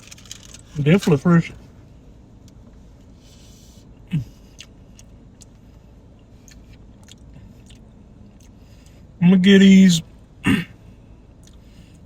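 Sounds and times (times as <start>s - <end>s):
steady low rumble: 0.0s - 12.0s
person chewing food: 4.2s - 5.6s, 6.2s - 8.9s, 11.4s - 11.7s.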